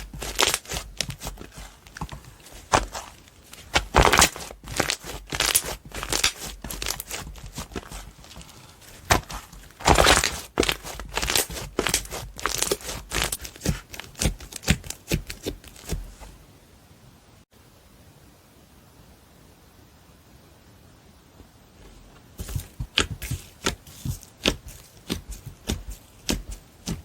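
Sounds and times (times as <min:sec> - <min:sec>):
slime popping and crackling: 0:00.0 - 0:16.0.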